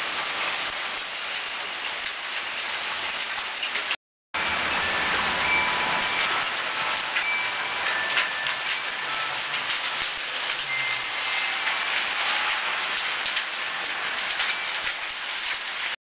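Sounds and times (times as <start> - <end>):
heavy rain hissing: 0.0 - 16.0
raindrops ticking on surfaces: 0.0 - 16.0.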